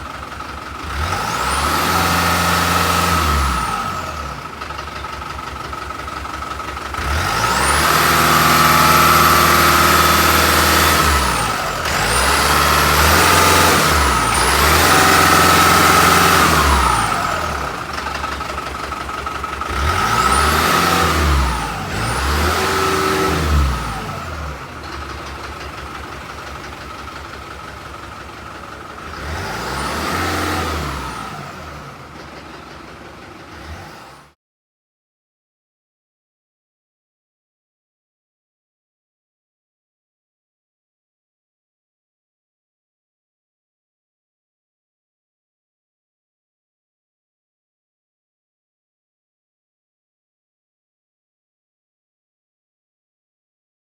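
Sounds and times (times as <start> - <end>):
truck engine revving: 0.0 - 34.3.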